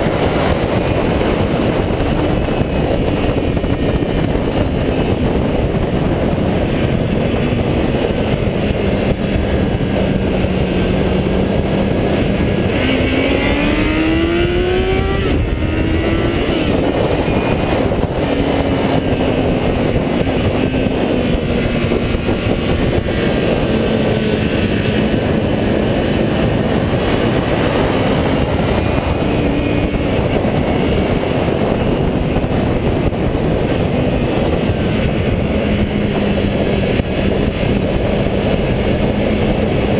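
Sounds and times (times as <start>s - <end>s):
motorcycle engine revving: 0.0s - 39.9s
rushing noise: 0.0s - 39.9s.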